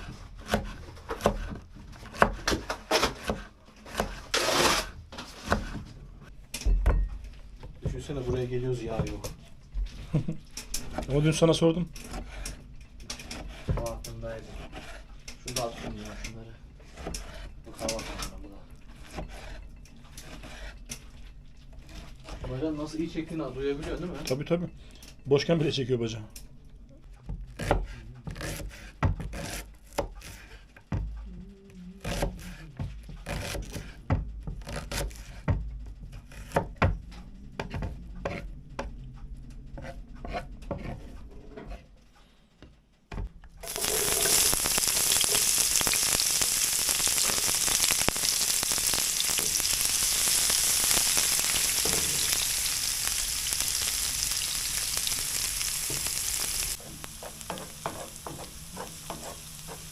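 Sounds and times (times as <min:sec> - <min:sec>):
food sizzling in hot pan: 0:43.6 - 0:59.9
pans and utensils clicking: 0:56.8 - 0:59.9.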